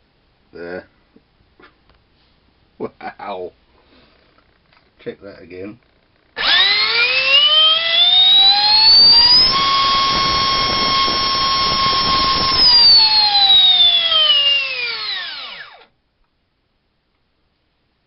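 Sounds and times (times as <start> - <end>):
electric fan whining: 6.4 - 15.9.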